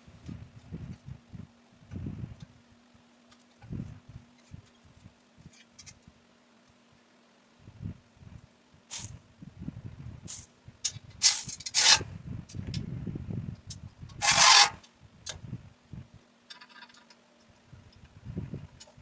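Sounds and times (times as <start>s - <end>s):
steady low hum: 7.6s - 16.2s
loud hissing bursts: 8.9s - 9.2s
metal scraping and knocking: 14.2s - 14.8s.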